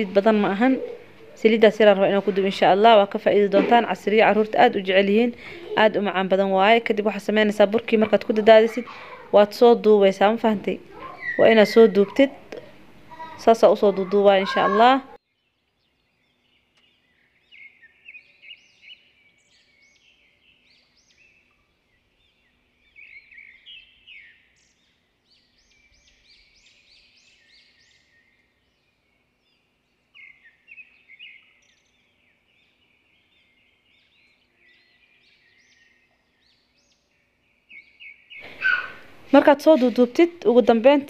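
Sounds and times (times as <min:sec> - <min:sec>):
faint bird twittering: 0:00.0 - 0:40.5.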